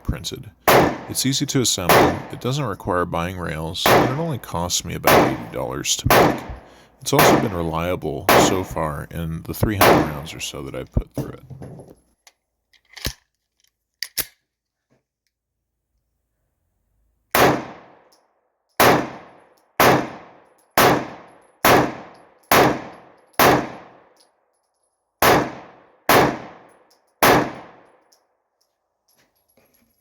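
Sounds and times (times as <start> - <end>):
pistol shots: 0.6 - 2.6, 3.8 - 8.8, 9.7 - 10.4, 17.3 - 18.1, 18.8 - 24.1, 25.2 - 28.0.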